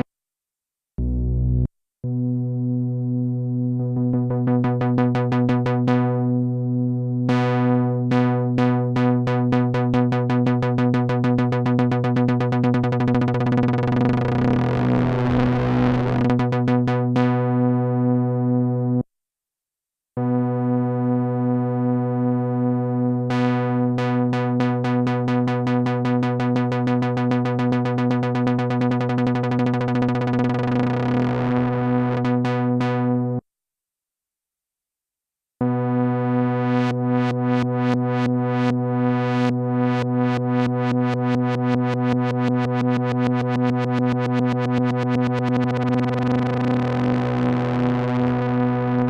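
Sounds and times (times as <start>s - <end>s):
synthesizer held low note: 1.0s - 7.4s, 10.8s - 16.8s
synthesizer low drone note: 1.0s - 19.0s, 20.2s - 33.4s, 35.6s - 49.0s
fast synthesizer sequence: 9.2s - 17.0s, 25.0s - 33.0s, 42.6s - 49.0s.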